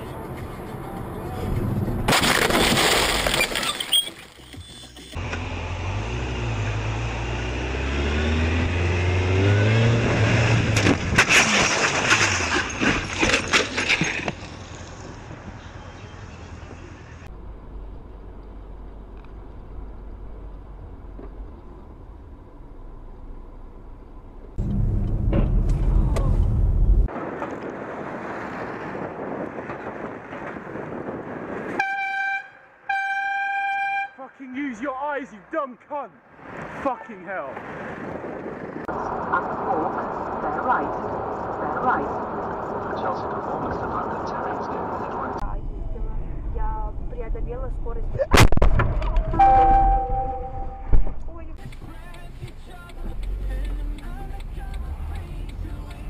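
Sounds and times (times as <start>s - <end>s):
car engine and road rumble: 0.0s - 33.0s, 33.6s - 56.0s
car horn honks: 31.8s - 34.3s, 49.4s - 51.0s.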